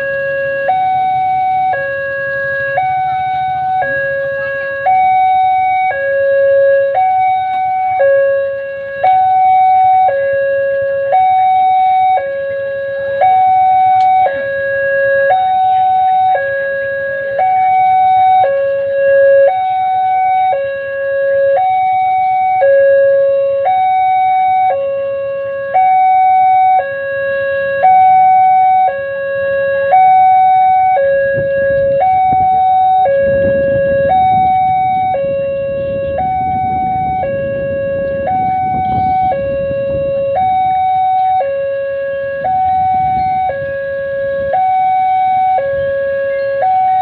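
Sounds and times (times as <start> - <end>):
two-tone crossing alarm: 0.0 - 47.0.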